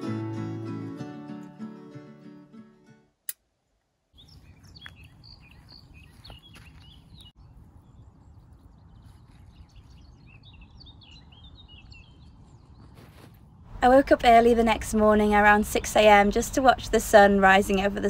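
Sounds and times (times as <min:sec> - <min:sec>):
small birds chirping and twittering: 0:04.1 - 0:13.6
low outdoor rumble: 0:07.2 - 0:18.0.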